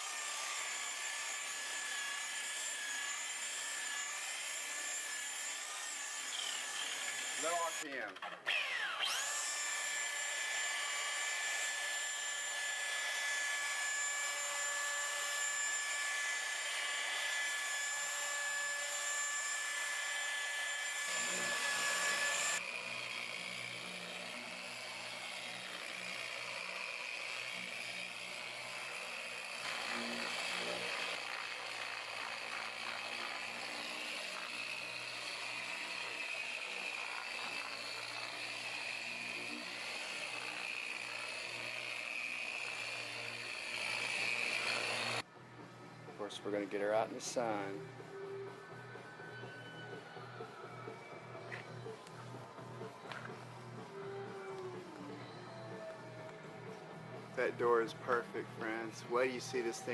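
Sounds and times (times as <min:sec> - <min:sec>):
electric paint buffer whining: 0:00.0 - 0:07.8, 0:08.5 - 0:45.2.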